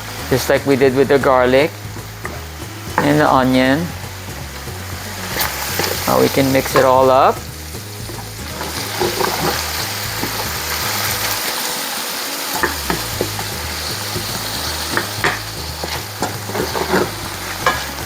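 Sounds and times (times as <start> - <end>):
vegetables sizzling in a pot: 0.0 - 18.0
utensil knocking against pot: 12.6 - 18.0.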